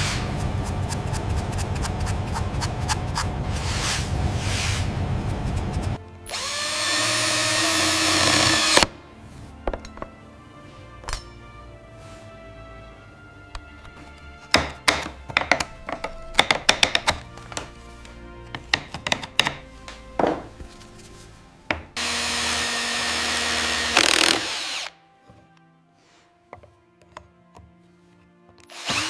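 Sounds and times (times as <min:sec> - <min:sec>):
soft background music: 0:00.0 - 0:29.0
power drill running: 0:06.3 - 0:08.9, 0:22.0 - 0:24.9, 0:28.7 - 0:29.0
hand tools tapping on wood: 0:13.6 - 0:20.7, 0:21.7 - 0:22.0, 0:26.5 - 0:27.8.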